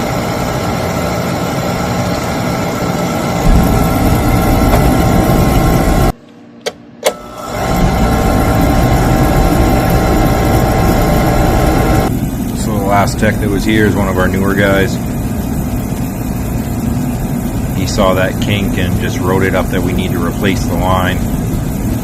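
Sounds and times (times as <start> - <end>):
oil burner humming: 0.0 - 6.2, 7.0 - 22.0
deep rumble: 3.3 - 6.2, 7.6 - 19.2.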